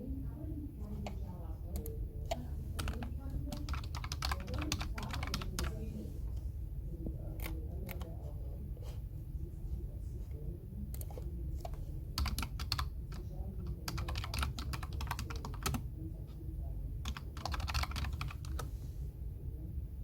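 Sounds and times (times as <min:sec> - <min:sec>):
low background hum: 0:00.0 - 0:20.0
keyboard typing: 0:01.0 - 0:05.8, 0:10.9 - 0:15.8, 0:17.0 - 0:18.7.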